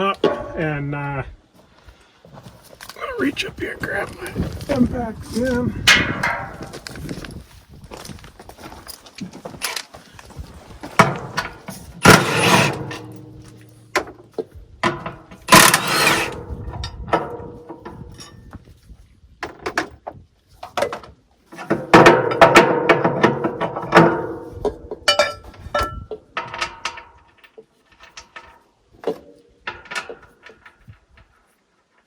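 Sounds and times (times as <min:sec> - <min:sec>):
knocks and clanks: 0:00.0 - 0:00.7, 0:05.4 - 0:07.4, 0:10.8 - 0:18.6, 0:21.6 - 0:27.5
impact wrench bursts: 0:15.5 - 0:16.4.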